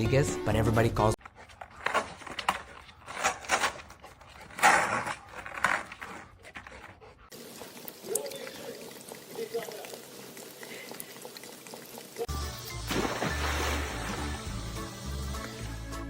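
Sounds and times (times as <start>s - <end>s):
dog panting: 1.2s - 12.3s.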